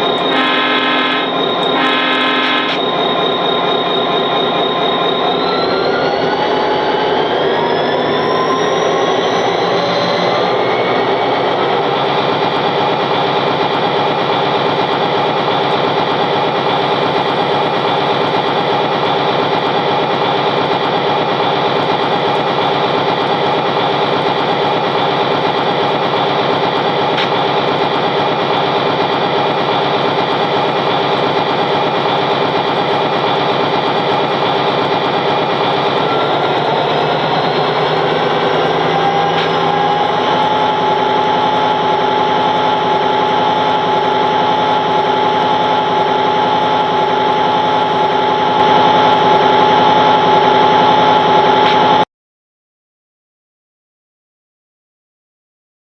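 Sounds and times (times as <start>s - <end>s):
engine drone: 0.0s - 52.0s.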